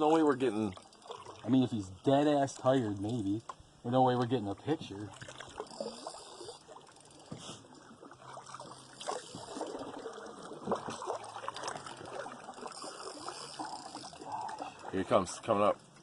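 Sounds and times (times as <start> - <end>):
water lapping around canoe hull: 0.0 - 16.0
light knocks and splashes: 2.5 - 15.5.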